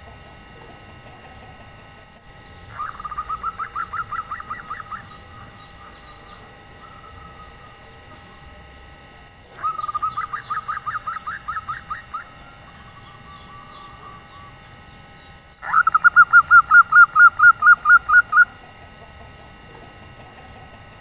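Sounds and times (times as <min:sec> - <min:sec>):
dove cooing: 0:00.0 - 0:14.9, 0:15.6 - 0:21.0
soft bird trill: 0:02.4 - 0:08.7, 0:09.6 - 0:18.6.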